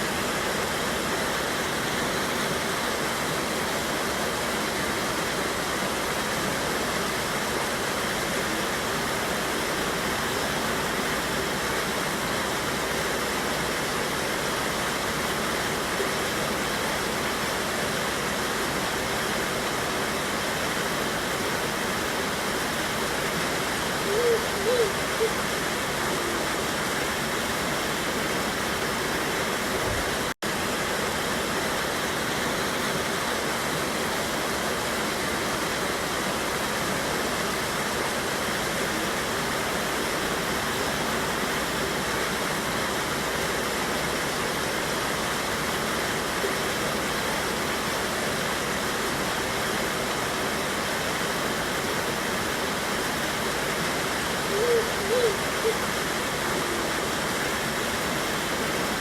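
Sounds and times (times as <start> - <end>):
waterfall rushing over rocks: 0.0 - 59.0.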